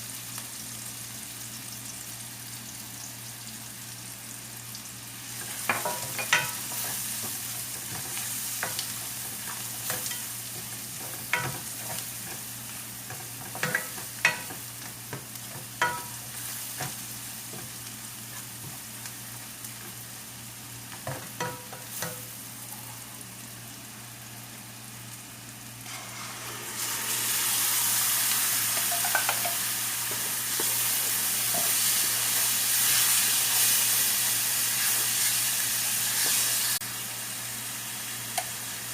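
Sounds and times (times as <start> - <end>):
food sizzling in hot pot: 0.0 - 38.9.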